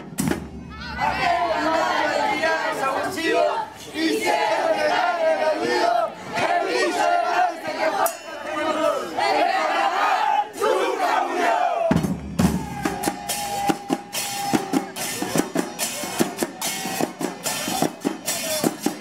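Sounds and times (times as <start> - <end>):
bass drum and snare strikes: 0.0 - 0.7, 11.8 - 19.0
crowd shouting: 0.5 - 19.0
cymbal crashes: 12.0 - 18.7.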